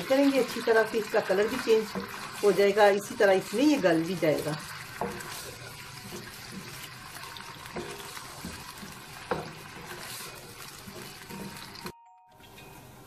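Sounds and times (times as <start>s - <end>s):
meat sizzling in a pan: 0.0s - 11.9s
spatula knocking against pan: 5.0s - 5.4s, 7.6s - 10.2s.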